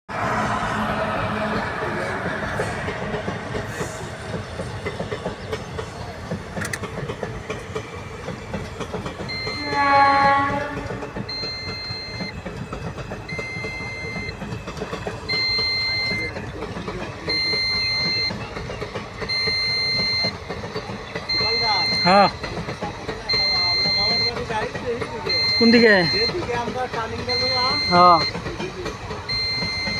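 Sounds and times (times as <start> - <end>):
train rumbling past: 0.0 - 29.9
train wheel clatter: 0.1 - 29.9
train horn: 9.4 - 11.3
high electronic beep: 25.3 - 26.4.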